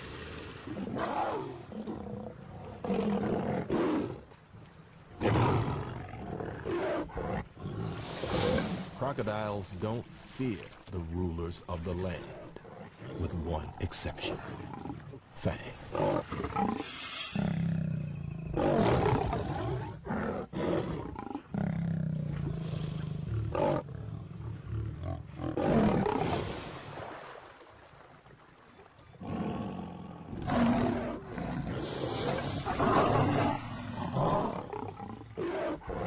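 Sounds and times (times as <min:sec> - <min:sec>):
lion growling: 0:29.2 - 0:36.0.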